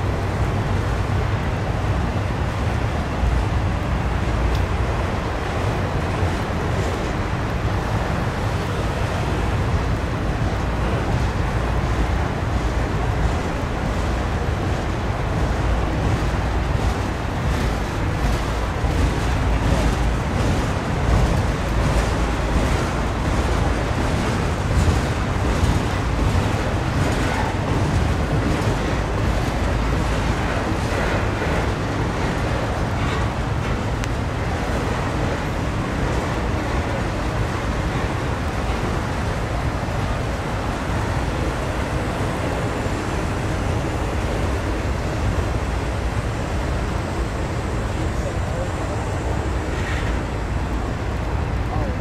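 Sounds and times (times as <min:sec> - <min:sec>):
train wheels rumbling on rail: 0:00.0 - 0:52.0
wheels clicking over rail joints: 0:04.3 - 0:52.0.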